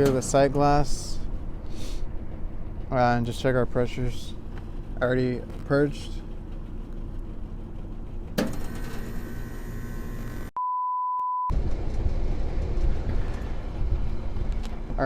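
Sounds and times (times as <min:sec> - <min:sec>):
low rumbling noise: 0:00.0 - 0:08.4, 0:11.5 - 0:15.0
low machinery noise: 0:00.0 - 0:10.5, 0:11.5 - 0:15.0
pure-tone bleep: 0:10.6 - 0:11.5.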